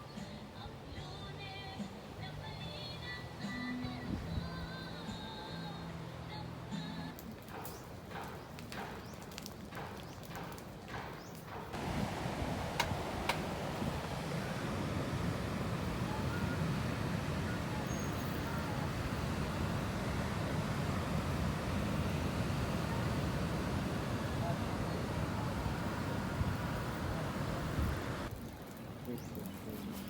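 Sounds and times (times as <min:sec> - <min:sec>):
wind on microphone: 0:11.8 - 0:28.4.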